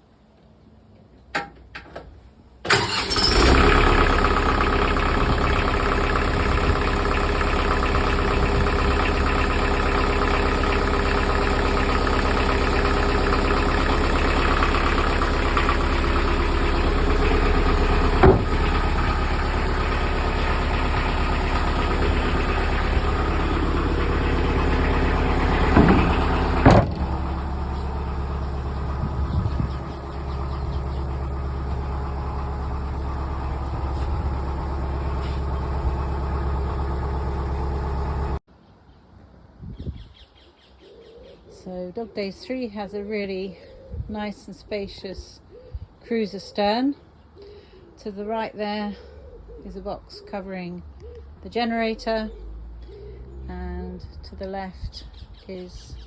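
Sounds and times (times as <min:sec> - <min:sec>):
diesel engine starting and idling: 0:02.6 - 0:38.5.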